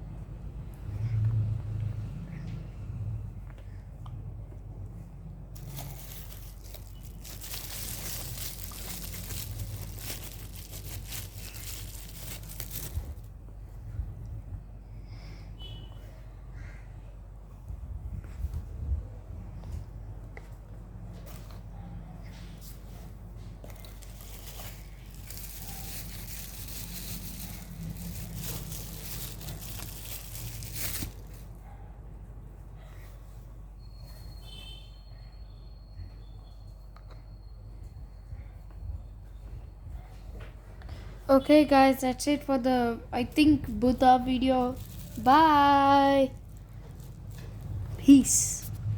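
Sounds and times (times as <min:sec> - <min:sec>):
packaging crinkling and rustling: 0:05.6 - 0:13.3, 0:23.7 - 0:31.6, 0:43.7 - 0:48.0.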